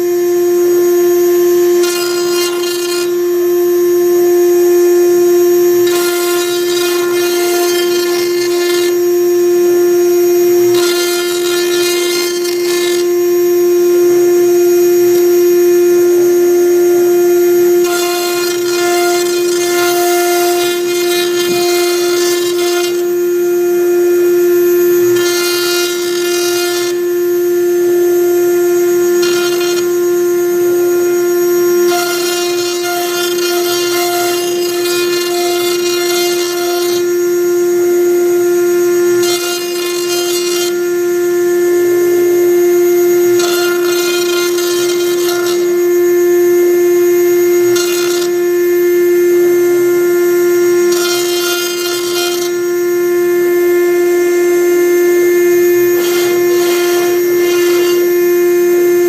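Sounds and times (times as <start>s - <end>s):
router spindle whine: 0.0s - 59.0s
bit rasping wood: 1.8s - 3.2s, 5.8s - 9.0s, 10.6s - 13.2s, 17.8s - 23.5s, 25.0s - 27.1s, 29.0s - 30.2s, 31.0s - 37.2s, 39.1s - 41.0s, 43.2s - 45.8s, 47.6s - 48.4s, 50.8s - 52.7s, 56.0s - 58.1s.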